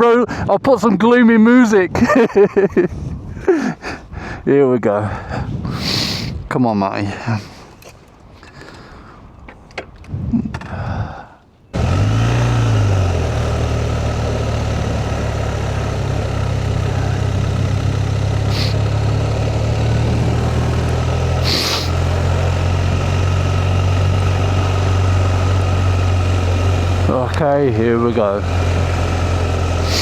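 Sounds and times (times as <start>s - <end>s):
motorcycle engine starting and idling: 11.7s - 30.0s.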